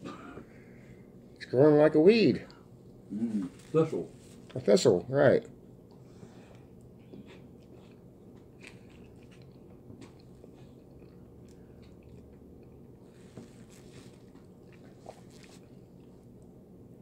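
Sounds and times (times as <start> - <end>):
person chewing food: 5.8 - 16.6.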